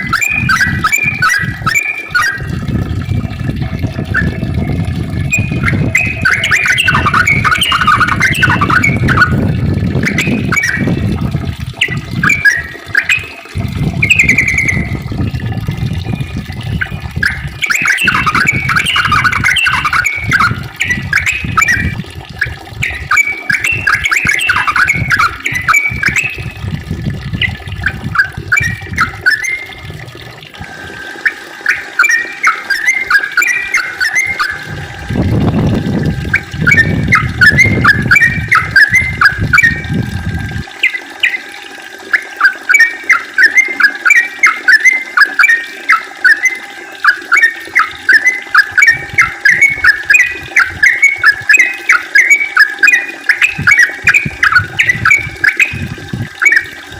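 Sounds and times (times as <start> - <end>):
bird singing chattering notes: 0.0 - 30.0, 31.2 - 41.5, 42.1 - 56.8
low rumbling noise: 0.0 - 31.1, 33.9 - 40.8.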